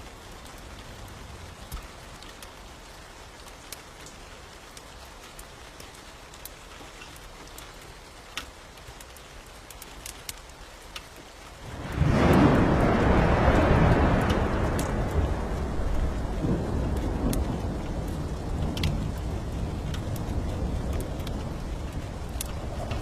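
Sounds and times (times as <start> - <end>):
raindrops ticking: 0.0 - 23.0
steady rain: 0.0 - 23.0
loud rolling thunderclap: 11.6 - 23.0.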